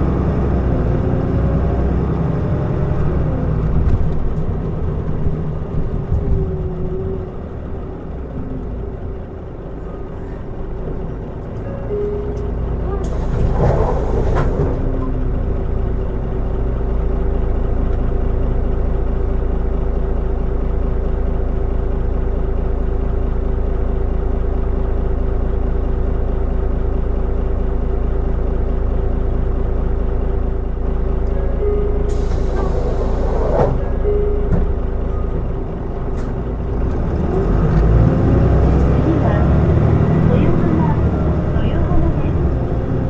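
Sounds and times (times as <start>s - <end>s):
bus diesel engine running: 0.0s - 43.0s
air brake hiss: 13.0s - 14.9s, 32.1s - 33.8s.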